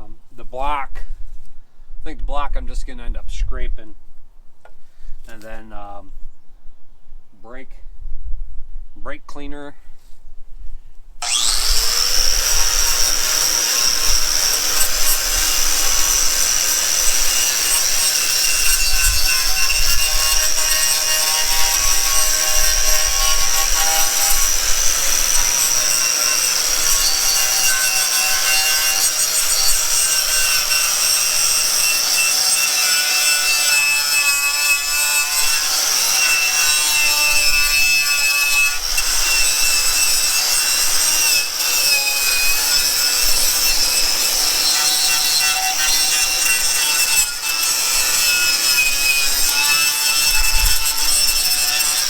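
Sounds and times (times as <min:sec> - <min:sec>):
power tool motor whine: 0:11.2 - 0:52.0.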